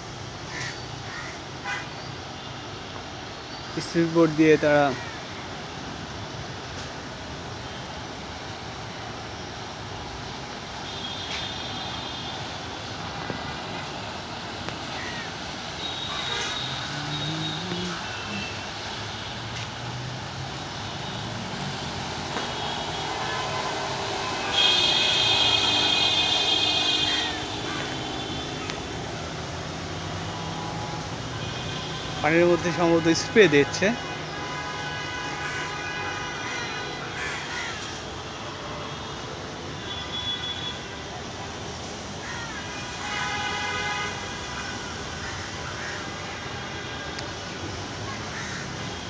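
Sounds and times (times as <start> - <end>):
crow cawing: 0.5 - 1.4, 4.9 - 5.4, 14.9 - 17.3, 24.4 - 28.8, 37.2 - 37.9, 42.2 - 42.7, 45.2 - 46.3, 48.1 - 49.0.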